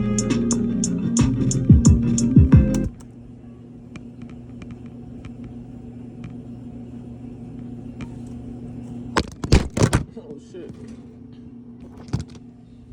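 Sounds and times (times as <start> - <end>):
strummed guitar music: 0.0 - 2.9
steady low hum: 0.0 - 12.9.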